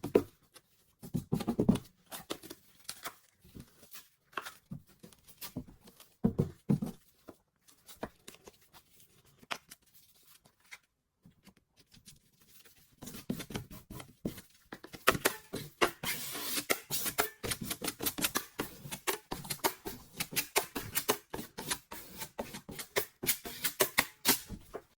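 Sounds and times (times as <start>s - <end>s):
hand tool scraping drywall: 15.3s - 24.7s.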